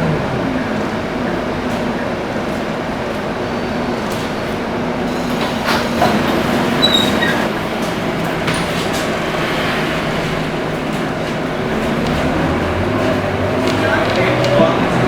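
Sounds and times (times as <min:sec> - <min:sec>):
bus engine and road hum: 0:00.0 - 0:15.0.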